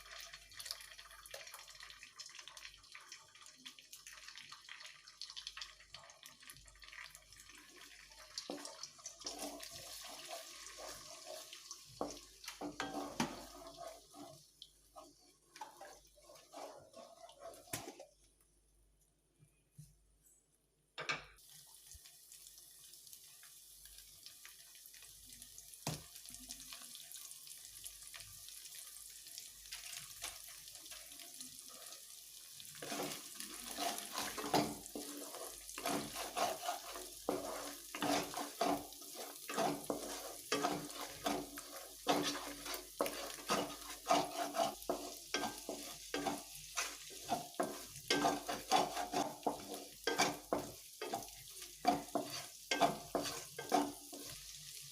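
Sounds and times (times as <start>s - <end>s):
food sizzling in a pan: 0.0s - 18.3s, 21.4s - 54.9s
spatula scraping a pan: 8.4s - 18.2s, 29.7s - 54.9s.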